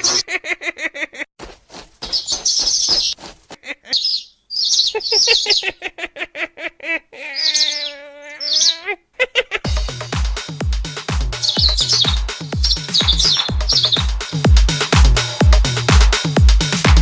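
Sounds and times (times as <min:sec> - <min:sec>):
bird chirping: 0:02.0 - 0:03.2, 0:03.8 - 0:05.8, 0:07.4 - 0:08.8, 0:11.4 - 0:14.4
longer lower bird call: 0:07.4 - 0:08.8, 0:11.4 - 0:14.1.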